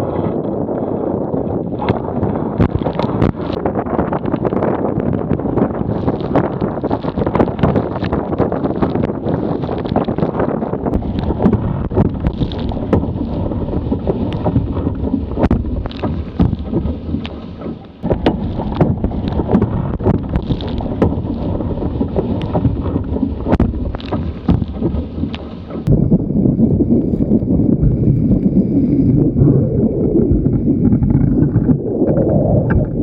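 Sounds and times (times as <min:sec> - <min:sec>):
wind buffeting microphone: 0:00.0 - 0:33.0
sharp knocks: 0:11.0 - 0:26.0.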